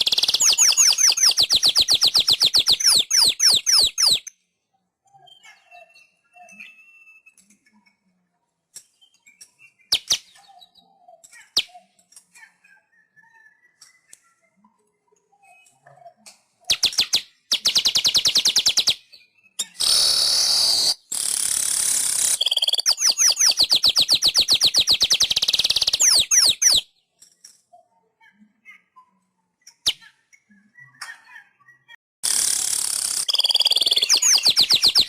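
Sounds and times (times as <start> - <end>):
bird ticking trill: 0.0 - 4.3, 16.7 - 26.8, 32.2 - 35.0
bird harsh wheezing buzz: 19.8 - 22.5.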